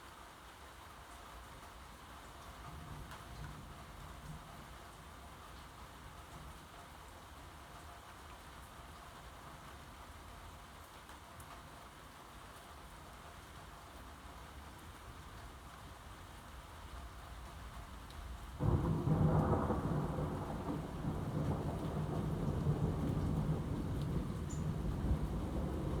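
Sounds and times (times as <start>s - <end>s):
rain falling: 0.0s - 26.0s
thunder crack and rumble: 18.6s - 26.0s.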